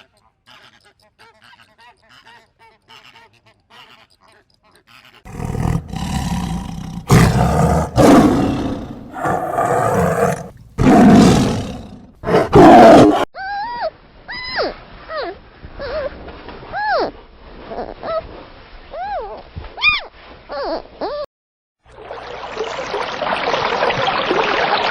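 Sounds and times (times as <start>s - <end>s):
big cat roaring: 5.3s - 13.3s.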